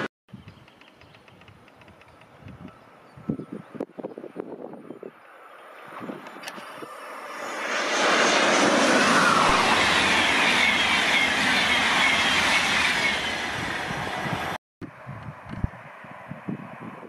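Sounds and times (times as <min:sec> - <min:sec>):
train passing at speed: 0:04.8 - 0:14.6, 0:15.3 - 0:17.0
high falling whine: 0:05.4 - 0:15.1.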